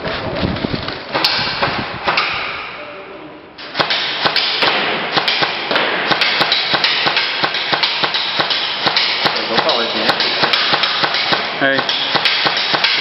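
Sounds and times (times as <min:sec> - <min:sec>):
airsoft gun shots: 0:01.1 - 0:02.8, 0:03.7 - 0:13.0.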